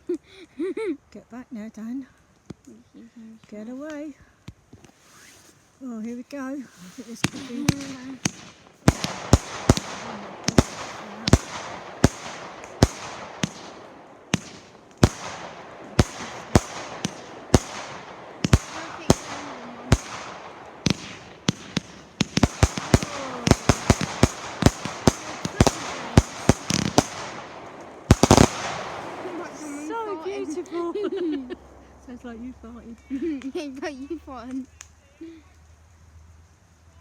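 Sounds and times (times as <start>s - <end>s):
firework crackling: 3.4s - 37.0s
firework bangs: 6.6s - 34.0s.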